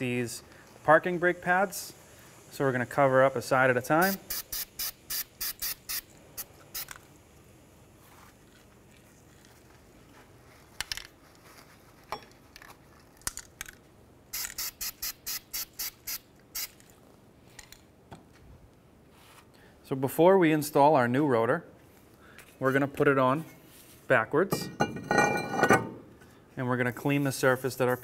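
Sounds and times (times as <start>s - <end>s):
aerosol spray bursts: 3.9s - 7.0s, 14.3s - 16.8s.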